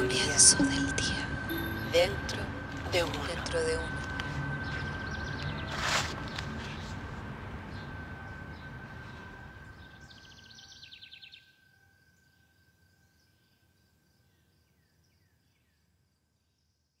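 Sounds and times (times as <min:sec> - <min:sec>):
steady high hum: 0:00.0 - 0:10.8.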